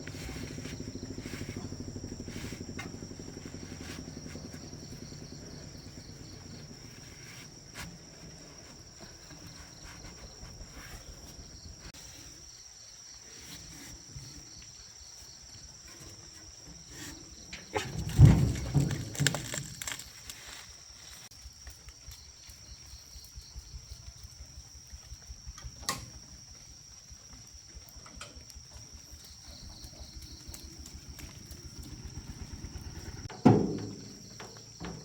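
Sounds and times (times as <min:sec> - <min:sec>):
low engine rumble: 0:00.0 - 0:12.0, 0:27.8 - 0:35.0
high insect drone: 0:00.0 - 0:35.0
loud knocks and thumps: 0:17.8 - 0:20.0, 0:33.2 - 0:35.0.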